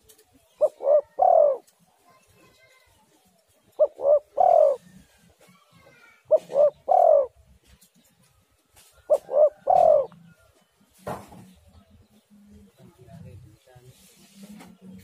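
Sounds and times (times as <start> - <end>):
birds chirping faintly: 0.0 - 15.0
dove cooing: 0.5 - 1.8, 3.8 - 5.2, 5.8 - 7.6, 9.0 - 10.4.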